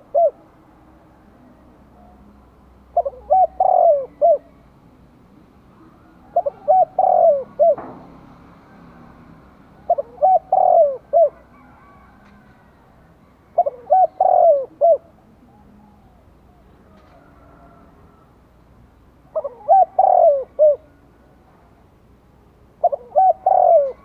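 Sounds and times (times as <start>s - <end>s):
dove cooing: 0.0s - 0.6s, 1.9s - 4.7s, 5.7s - 8.0s, 9.8s - 18.4s, 19.3s - 21.4s, 22.8s - 24.0s.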